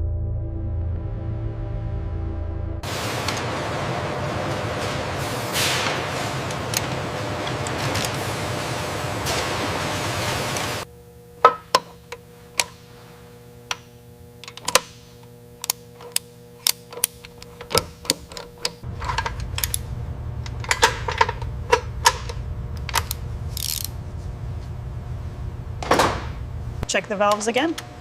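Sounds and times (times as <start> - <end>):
low rumble: 0.0 - 2.9, 18.8 - 26.9
steady hum: 0.0 - 28.0
tools clicking and clanking: 14.4 - 15.0, 15.6 - 24.0.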